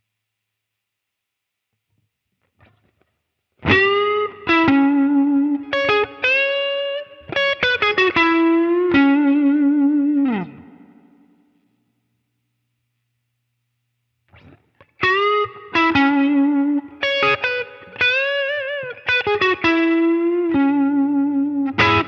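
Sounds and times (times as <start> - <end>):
overdriven electric guitar lead: 2.5 - 11.5, 14.3 - 22.0.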